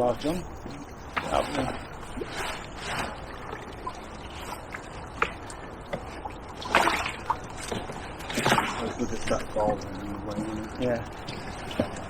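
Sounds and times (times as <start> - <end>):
rushes of water: 0.0 - 12.0
river water splashing: 1.2 - 10.0.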